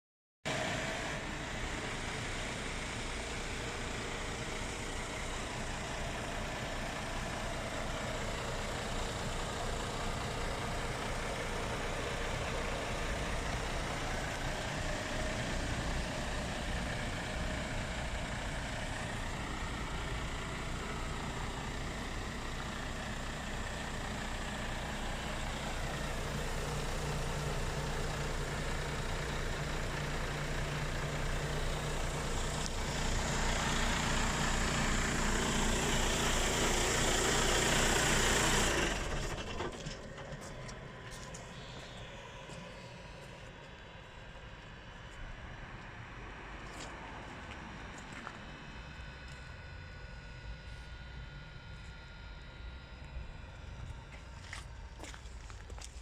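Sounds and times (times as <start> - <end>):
truck diesel engine idling: 0.5 - 56.0.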